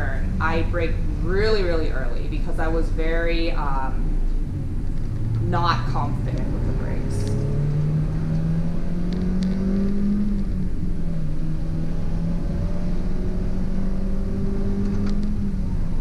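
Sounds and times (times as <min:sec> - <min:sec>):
car engine accelerating hard: 0:03.5 - 0:16.0.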